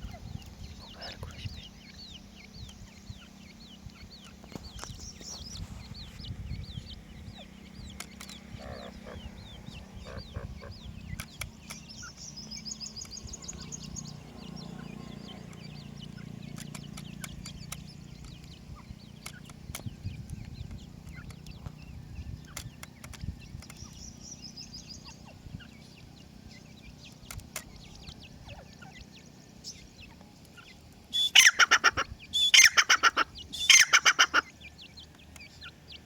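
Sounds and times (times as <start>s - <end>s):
steady low hum: 0.0s - 31.2s
chicks cheeping: 0.0s - 36.0s
scattered clicks: 11.1s - 12.3s, 16.4s - 18.6s.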